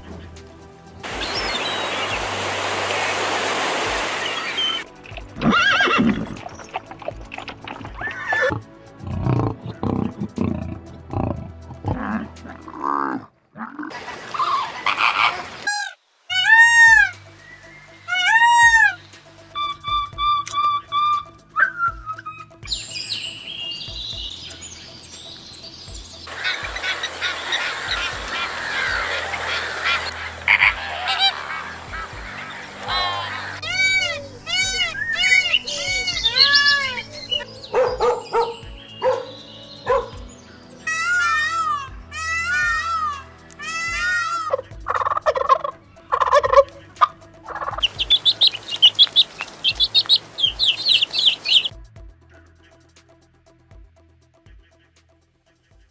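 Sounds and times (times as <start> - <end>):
hiss: 0.4 - 4.8
waterfowl flock calling: 1.0 - 8.6, 13.9 - 25.2, 25.9 - 51.7
bird whistled call gliding: 1.1 - 7.1, 14.0 - 51.8.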